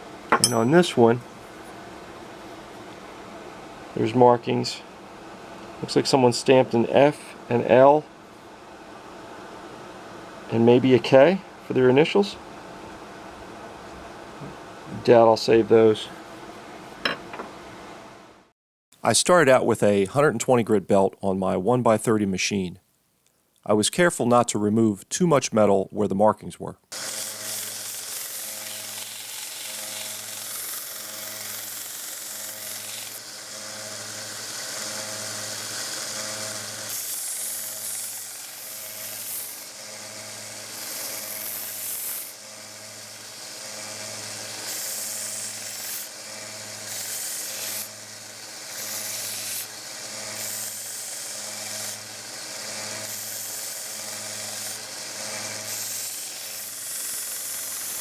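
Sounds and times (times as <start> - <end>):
belt sander grinding steel: 27.0 - 58.0.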